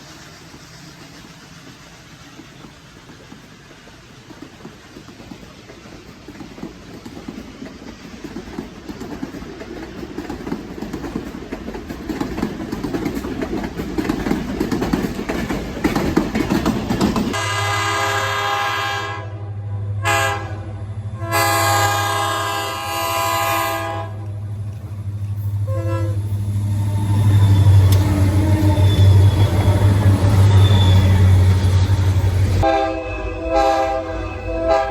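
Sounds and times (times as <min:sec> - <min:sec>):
train wheels clattering on rails: 0:00.0 - 0:18.2, 0:21.8 - 0:32.8
locomotive horn blasts: 0:17.3 - 0:24.3, 0:25.7 - 0:26.3, 0:32.6 - 0:34.9.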